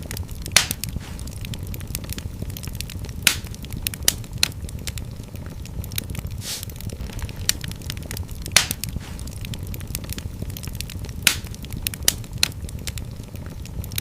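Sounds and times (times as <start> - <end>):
fire crackling and popping: 0.0 - 14.0
low rumble of flames: 0.0 - 14.0
brief hiss: 6.4 - 6.7.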